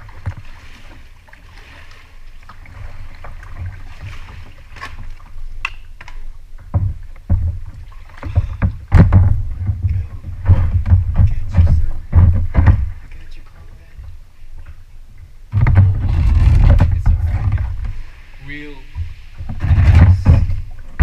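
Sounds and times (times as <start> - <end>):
water splashing against kayak: 0.0 - 21.0
wind on microphone: 15.5 - 18.2, 18.9 - 21.0.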